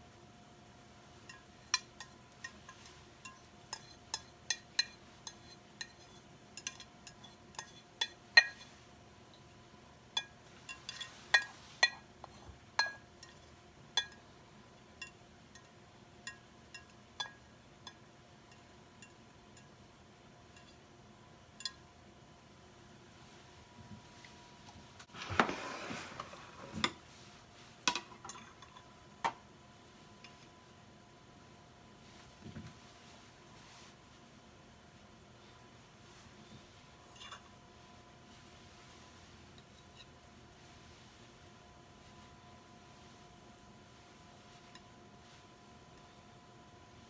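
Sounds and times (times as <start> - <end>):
utensils and dishes clinking: 25.1 - 27.0.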